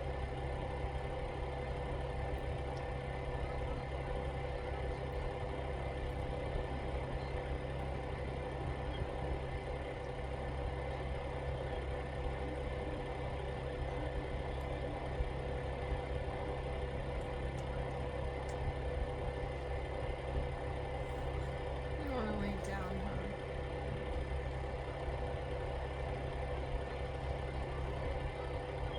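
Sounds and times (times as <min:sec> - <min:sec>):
steady mechanical hum: 0:00.0 - 0:28.9.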